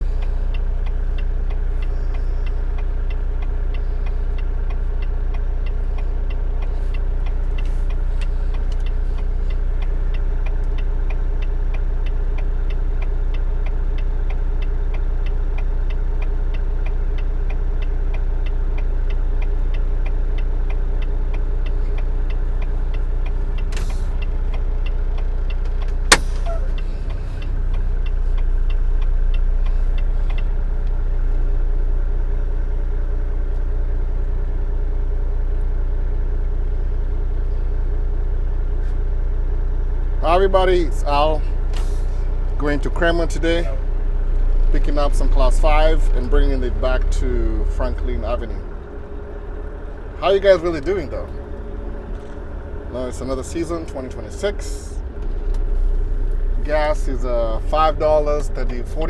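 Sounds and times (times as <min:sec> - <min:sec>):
light regular ticking: 0:00.0 - 0:33.8, 0:39.0 - 0:59.0
diesel engine idling: 0:00.0 - 0:59.0
sharp click: 0:25.8 - 0:26.8.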